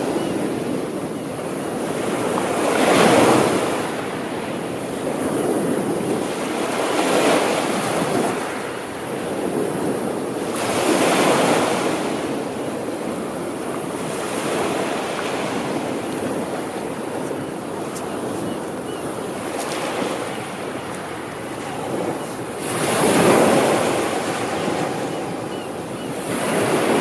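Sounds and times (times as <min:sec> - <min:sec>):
sea waves washing onto shore: 0:00.0 - 0:27.0.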